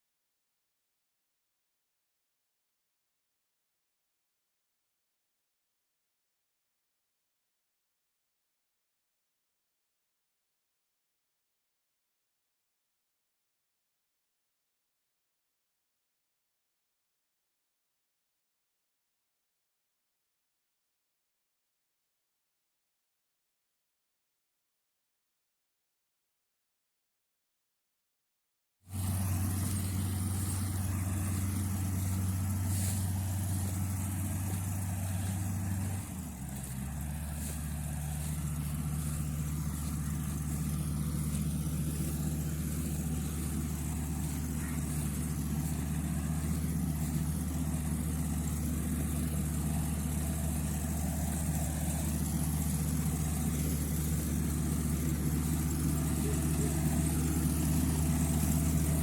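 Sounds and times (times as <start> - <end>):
combine harvester diesel engine: 28.9 - 59.0.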